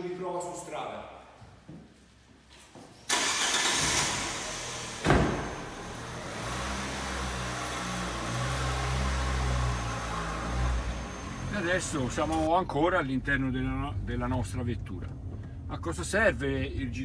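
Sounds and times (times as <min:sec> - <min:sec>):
car engine starting and idling: 0:03.1 - 0:17.0
car door shutting: 0:04.9 - 0:05.8.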